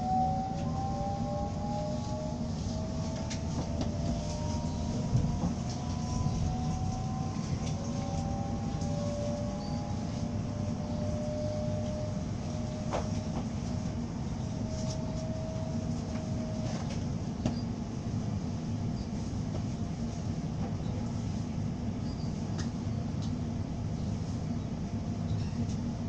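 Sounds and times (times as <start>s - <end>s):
drawn-out whining tones: 0.0s - 16.9s
train rumble inside carriage: 0.0s - 26.0s.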